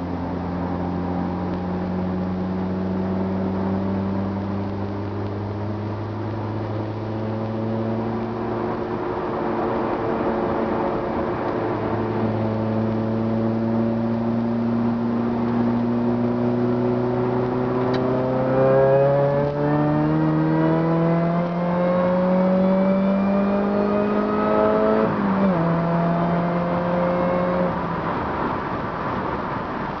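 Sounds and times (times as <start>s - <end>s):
car engine and exhaust drone: 0.0s - 30.0s.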